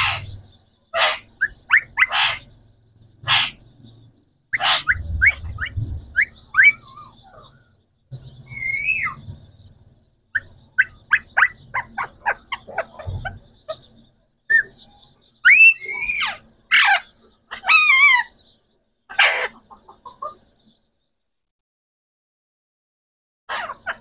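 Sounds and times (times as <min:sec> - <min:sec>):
parrot squawks: 0:00.0 - 0:02.5, 0:03.2 - 0:03.6, 0:04.5 - 0:07.5, 0:08.5 - 0:09.2, 0:10.4 - 0:13.8, 0:15.4 - 0:18.3, 0:19.1 - 0:20.4, 0:23.5 - 0:24.0
parrots chirping: 0:00.0 - 0:20.8, 0:23.5 - 0:24.0
parrot harsh screech: 0:02.1 - 0:02.4, 0:03.3 - 0:03.6, 0:08.5 - 0:09.2, 0:15.5 - 0:18.3.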